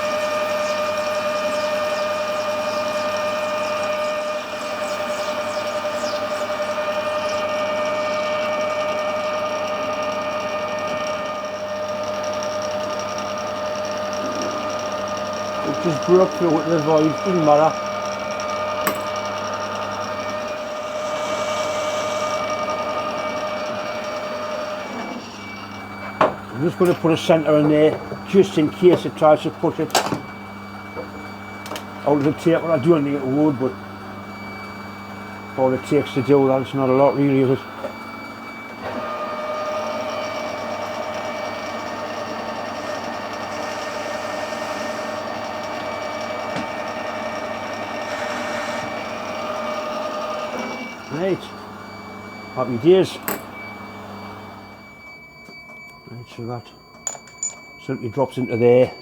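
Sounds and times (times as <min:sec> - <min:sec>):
metal lathe whining: 0:00.0 - 0:59.0.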